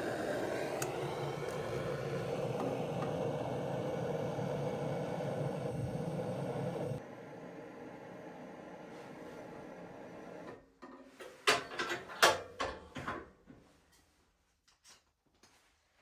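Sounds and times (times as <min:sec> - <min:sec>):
steady hum: 0:00.0 - 0:09.1.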